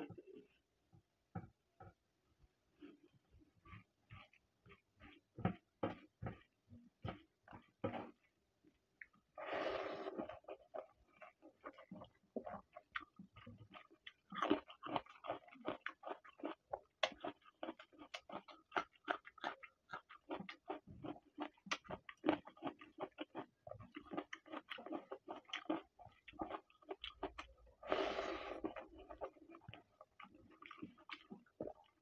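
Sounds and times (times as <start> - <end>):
wet chewing and lip smacking: 10.3 - 27.8, 28.6 - 32.0.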